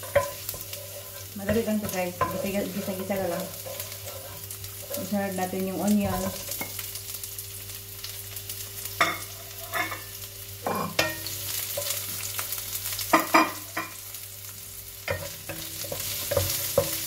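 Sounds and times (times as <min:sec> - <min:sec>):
wooden spatula stirring: 0:00.0 - 0:05.3
garlic and onion sizzling in oil: 0:00.0 - 0:17.0.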